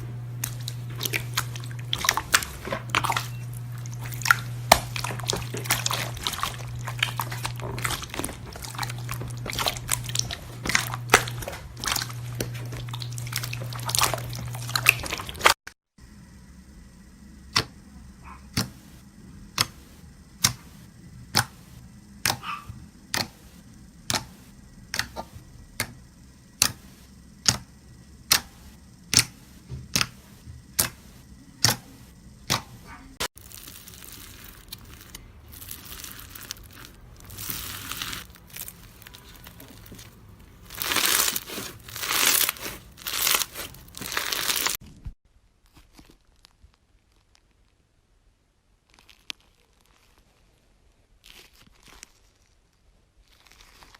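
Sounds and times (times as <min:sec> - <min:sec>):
slime crinkling and crackling: 0:00.0 - 0:15.6, 0:33.4 - 0:47.9, 0:48.7 - 0:53.9
slime popping: 0:00.4 - 0:15.6, 0:33.4 - 0:44.8.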